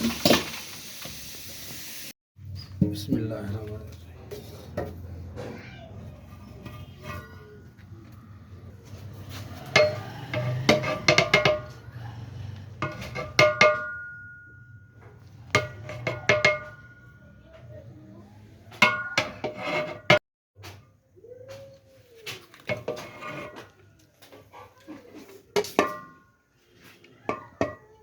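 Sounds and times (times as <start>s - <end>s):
metal ladle striking metal pot: 9.7s - 11.8s, 12.8s - 14.7s, 15.5s - 17.2s, 18.8s - 20.2s, 25.6s - 26.3s.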